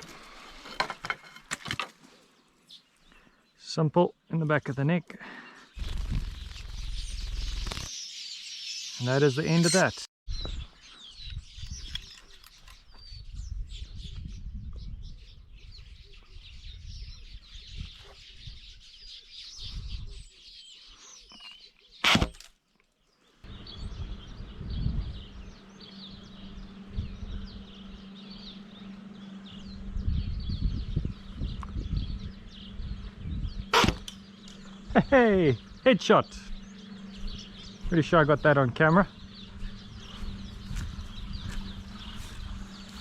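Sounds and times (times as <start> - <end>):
small birds chirping: 2.0 - 43.0
low rumble: 23.5 - 43.0
sharp sudden noise: 33.7 - 34.2.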